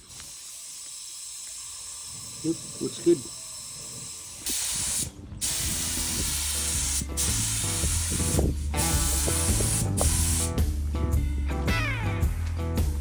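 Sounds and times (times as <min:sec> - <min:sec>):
paint spray gun hissing: 0:00.0 - 0:10.6
background music with bass: 0:05.2 - 0:13.0.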